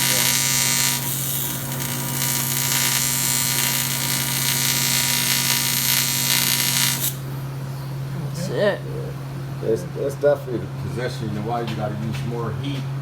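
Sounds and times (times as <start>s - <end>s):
welding arc hissing: 0.0s - 7.5s.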